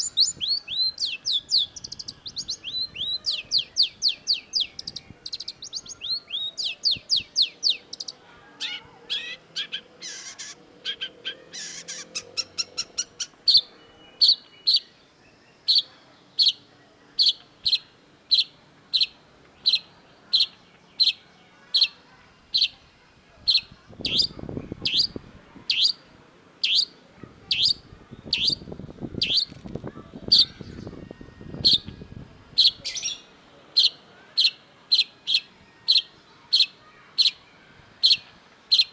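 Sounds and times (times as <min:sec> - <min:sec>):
shrike calling: 0:00.0 - 0:15.0, 0:23.5 - 0:38.9.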